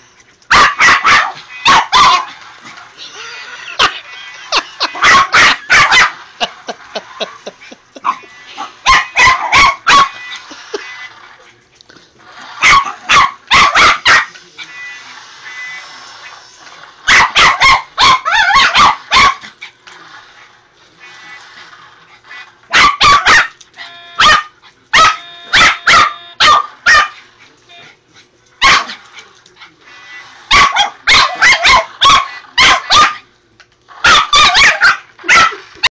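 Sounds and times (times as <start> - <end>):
dog barking excitedly: 0.5 - 2.4, 4.8 - 6.2, 8.0 - 10.2, 12.6 - 14.3, 17.1 - 19.7, 22.7 - 23.6, 24.2 - 27.2, 28.6 - 29.1, 30.5 - 33.3, 34.0 - 35.8.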